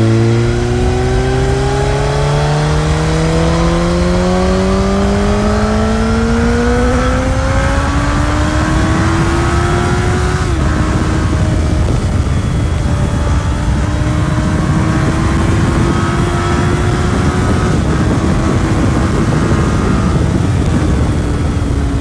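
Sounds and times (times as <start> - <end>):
motorcycle engine accelerating: 0.0 - 22.0
wind rush: 0.0 - 22.0.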